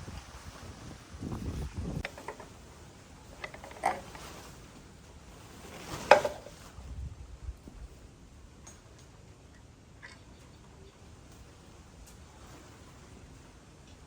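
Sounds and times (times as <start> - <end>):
metal parts clinking and clanking: 2.0 - 2.5, 3.4 - 4.3.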